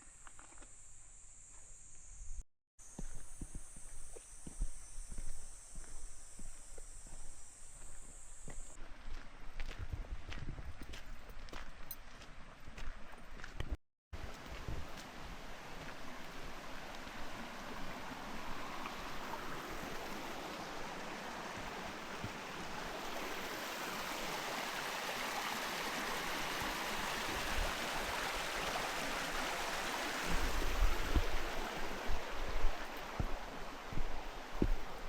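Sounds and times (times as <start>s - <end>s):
waterfall rushing: 16.4s - 35.0s.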